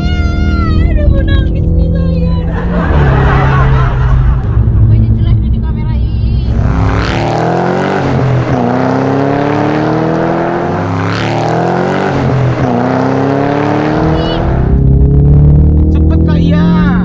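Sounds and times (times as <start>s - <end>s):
sports car engine accelerating: 0.0s - 17.0s.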